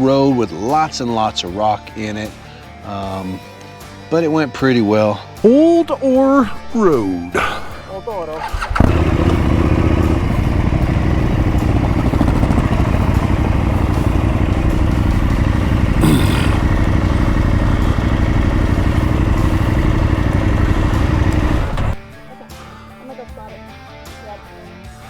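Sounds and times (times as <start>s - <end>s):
motorcycle engine running: 7.6s - 22.3s.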